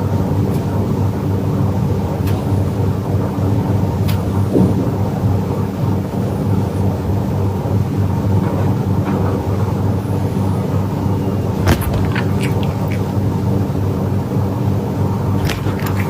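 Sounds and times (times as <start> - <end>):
cat purring: 11.5 - 13.6, 15.3 - 16.0.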